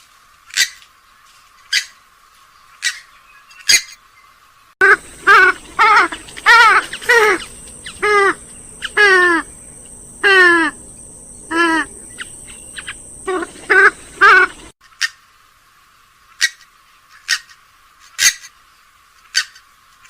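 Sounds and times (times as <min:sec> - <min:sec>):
bird calls falling in pitch: 0:04.8 - 0:14.7.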